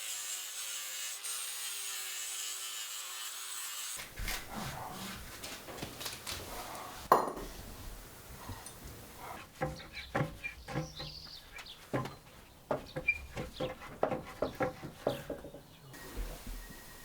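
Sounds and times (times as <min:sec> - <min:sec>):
wooden pieces knocking: 0:08.8 - 0:15.7
bird chirping: 0:09.2 - 0:17.0.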